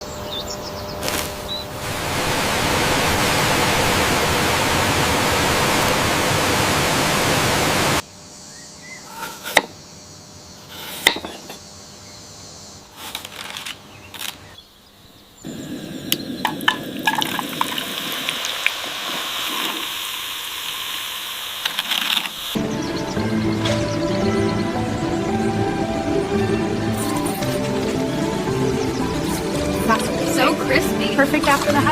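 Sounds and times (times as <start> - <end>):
running water: 1.8 - 8.0, 15.5 - 22.6, 25.3 - 31.9
frying hiss with crackles: 15.4 - 23.1, 27.0 - 31.9.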